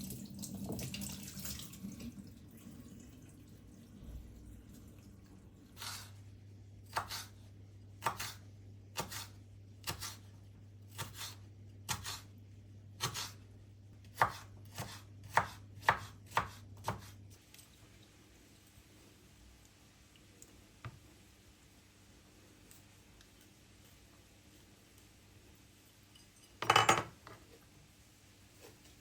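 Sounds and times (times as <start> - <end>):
low steady hum: 0.0 - 29.0
knife chopping on cutting board: 6.9 - 7.4, 8.0 - 8.4, 9.0 - 10.2, 10.9 - 12.3, 13.0 - 13.4, 14.0 - 17.2.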